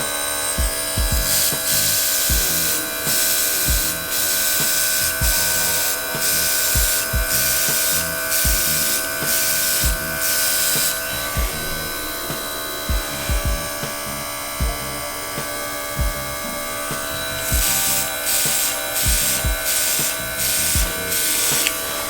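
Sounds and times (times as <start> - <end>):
air compressor motor whine: 0.0 - 22.0
deep low thumps: 0.6 - 2.8, 3.7 - 4.0, 5.2 - 5.8, 6.8 - 7.6, 8.4 - 8.8, 9.8 - 10.2, 12.9 - 15.2, 15.9 - 18.2, 19.0 - 19.6, 20.6 - 21.1
airbrush hissing spray bursts: 0.8 - 11.4, 16.9 - 22.0.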